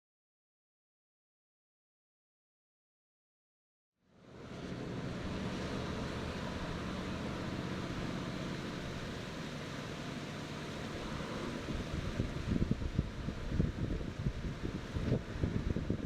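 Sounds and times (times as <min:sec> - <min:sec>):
river water rushing: 0:04.2 - 0:16.0.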